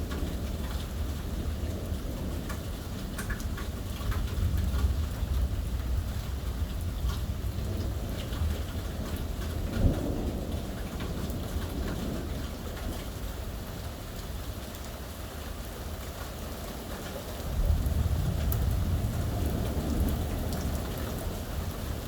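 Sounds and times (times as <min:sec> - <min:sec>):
rolling thunder: 0:00.0 - 0:13.8, 0:17.4 - 0:22.0
heavy rain falling: 0:00.0 - 0:22.0.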